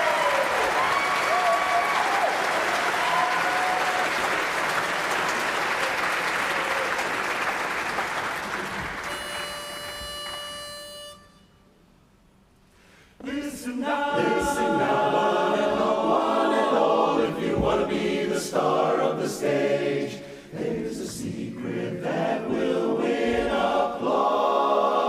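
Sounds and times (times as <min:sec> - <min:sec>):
audience applause: 0:00.0 - 0:10.5
pitch pipe steady note: 0:09.1 - 0:11.9.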